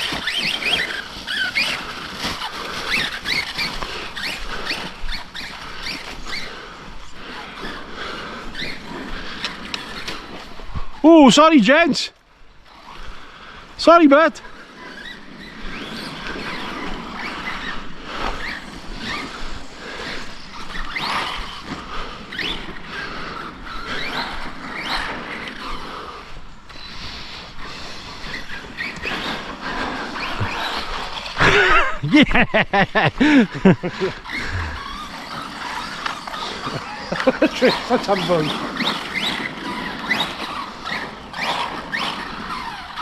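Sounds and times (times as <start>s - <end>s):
toy truck motors whining: 0.0s - 11.1s, 14.4s - 31.9s, 32.7s - 43.0s
voices: 13.8s - 14.4s, 36.2s - 39.0s.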